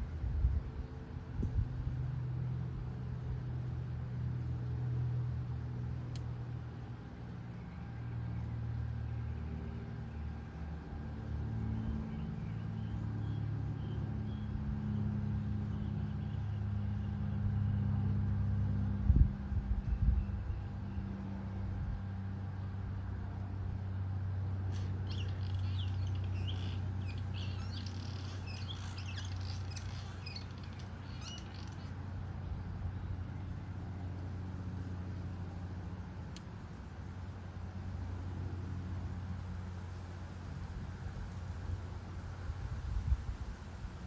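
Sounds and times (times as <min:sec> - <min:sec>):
low engine hum: 0:00.0 - 0:44.0
faint high chirps: 0:24.7 - 0:31.9.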